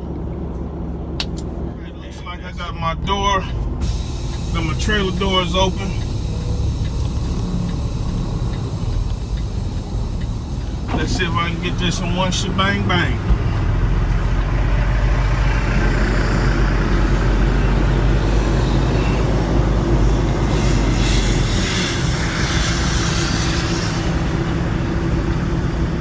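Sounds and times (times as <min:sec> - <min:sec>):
diesel truck engine running: 0:00.0 - 0:26.0
brief hissing: 0:03.8 - 0:12.0.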